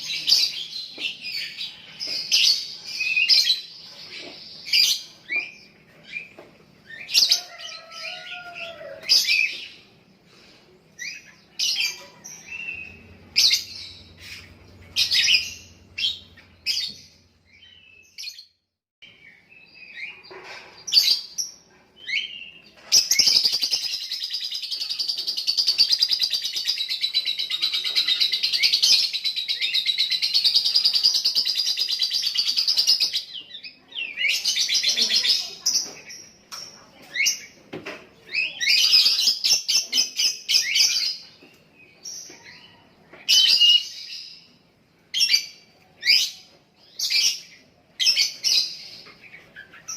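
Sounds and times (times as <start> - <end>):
lovebird chirping and chattering: 11.0 - 18.5, 19.9 - 37.6.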